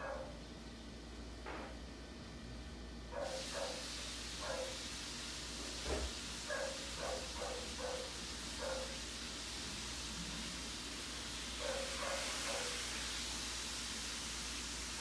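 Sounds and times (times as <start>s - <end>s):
dog barking: 0.0s - 0.4s, 3.1s - 3.8s, 4.4s - 4.8s, 6.5s - 9.0s, 11.6s - 12.8s
ceiling fan hissing: 0.0s - 15.0s.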